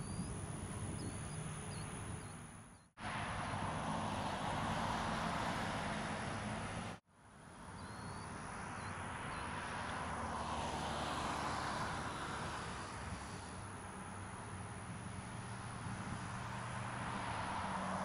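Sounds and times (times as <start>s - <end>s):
outdoor background rush: 0.0s - 18.0s
faint bird chirps: 7.7s - 9.5s.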